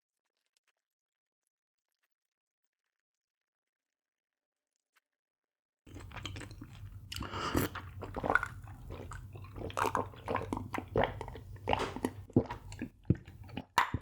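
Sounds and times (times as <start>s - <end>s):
low steady hum: 5.9s - 13.8s
person chewing food: 5.9s - 14.0s.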